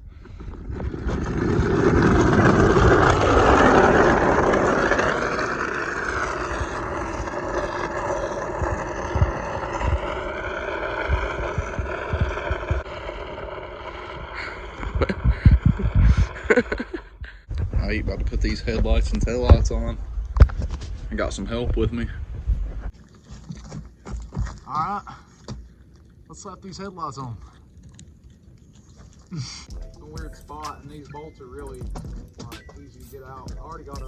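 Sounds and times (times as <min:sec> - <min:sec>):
wind buffeting microphone: 0:00.0 - 0:23.0
small engine revving: 0:00.9 - 0:15.2.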